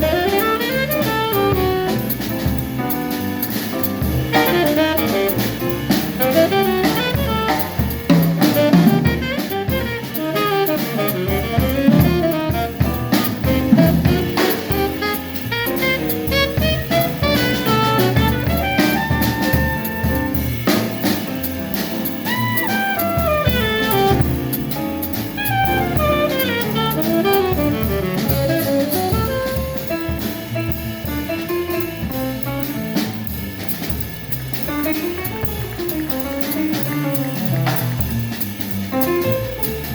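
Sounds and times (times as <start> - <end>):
saxophone solo: 0.0 - 2.8, 4.2 - 21.3, 22.1 - 32.1
drum kit: 0.0 - 39.9
jazz quartet playing: 0.0 - 39.9.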